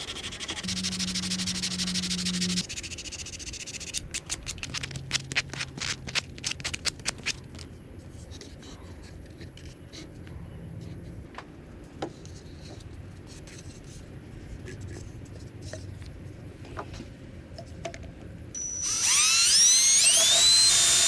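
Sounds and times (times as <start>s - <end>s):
power tool motor hum: 0.6s - 2.6s, 18.6s - 21.0s
hissing cut: 18.6s - 21.0s.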